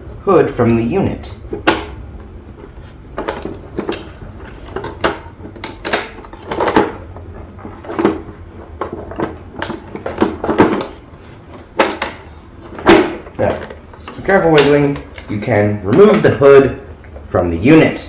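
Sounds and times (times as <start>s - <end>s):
plastic knocks clicks and rattles: 3.2s - 16.8s.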